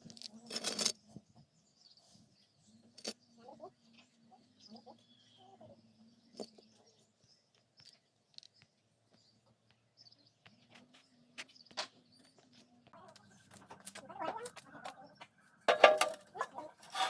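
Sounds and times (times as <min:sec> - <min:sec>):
faint bird chirps: 0:00.1 - 0:15.7.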